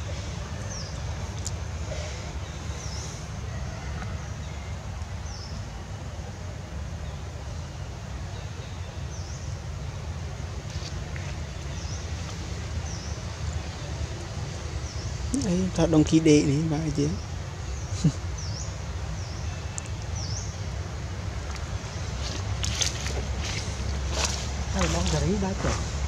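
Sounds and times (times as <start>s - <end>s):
steady low rumble: 10.0s - 26.0s.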